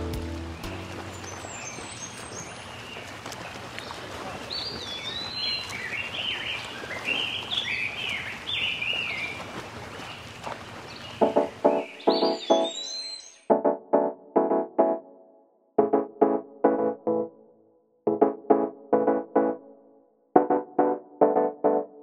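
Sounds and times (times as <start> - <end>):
background music: 0.0 - 1.2, 11.2 - 22.0.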